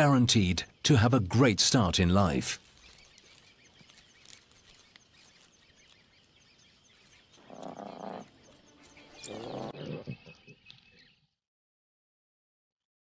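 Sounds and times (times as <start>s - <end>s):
insects chirping: 2.6s - 9.8s
lion calls: 7.4s - 10.6s.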